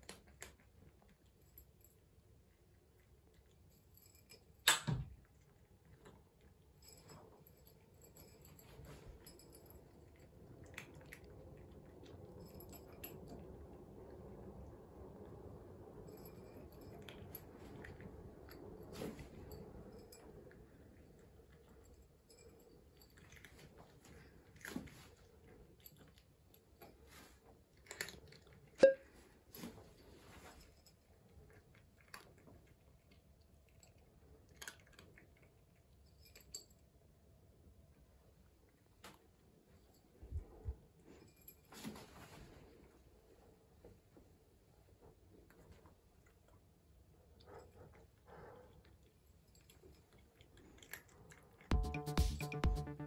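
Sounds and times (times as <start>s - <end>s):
low room hum: 0.0s - 53.0s
cat chewing wet food: 31.4s - 36.1s, 47.3s - 51.7s
cat chewing: 47.3s - 51.7s.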